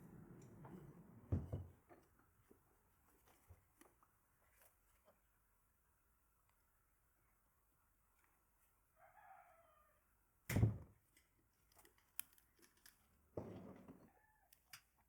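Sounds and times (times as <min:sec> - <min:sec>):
rooster crowing: 0:09.0 - 0:10.0.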